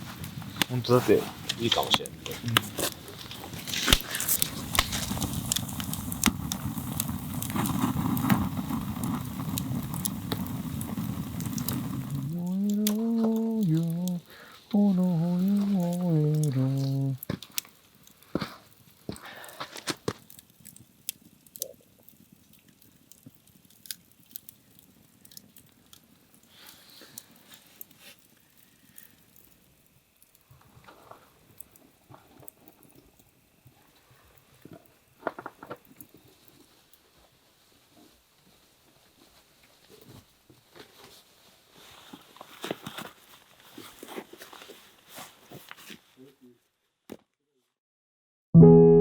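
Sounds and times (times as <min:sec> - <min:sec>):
faint low hiss: 0:00.0 - 0:43.6
campfire crackling: 0:00.0 - 0:45.8.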